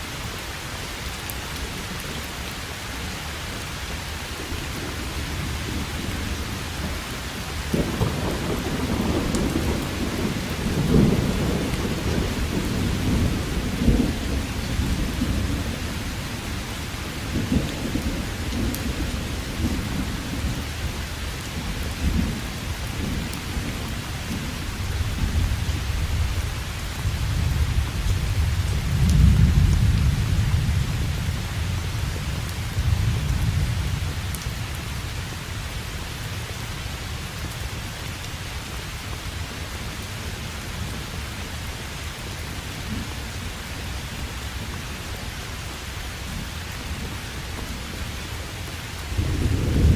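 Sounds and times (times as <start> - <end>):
steady rain: 0.0 - 49.9
rolling thunder: 4.4 - 24.1, 24.7 - 34.4, 49.1 - 49.9.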